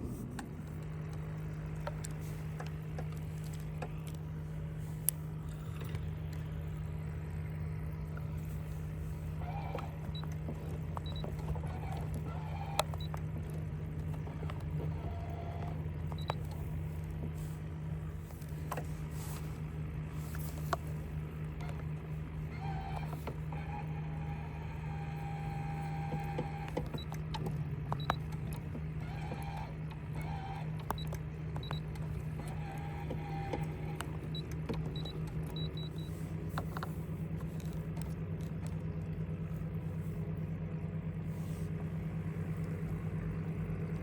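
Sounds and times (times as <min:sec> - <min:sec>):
low motor hum: 0:00.0 - 0:44.0
sharp clicks and knocks: 0:20.3 - 0:38.9.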